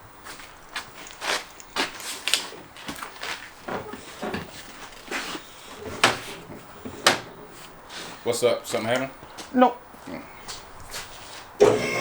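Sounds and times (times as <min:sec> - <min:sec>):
hand tools clicking and knocking: 0:00.4 - 0:08.2.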